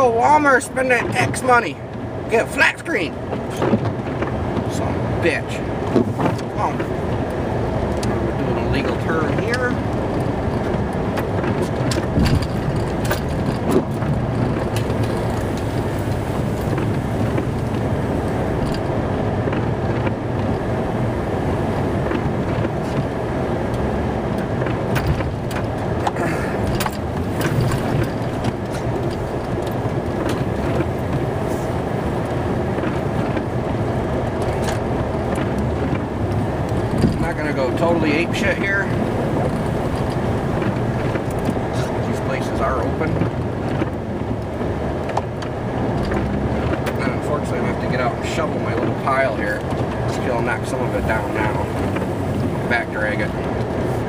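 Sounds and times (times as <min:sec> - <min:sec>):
truck engine and road noise: 0:00.0 - 0:54.0
clicks and knocks in cab: 0:03.3 - 0:04.8, 0:05.8 - 0:07.3, 0:09.3 - 0:17.9, 0:22.0 - 0:31.4, 0:32.2 - 0:42.0, 0:42.6 - 0:47.2.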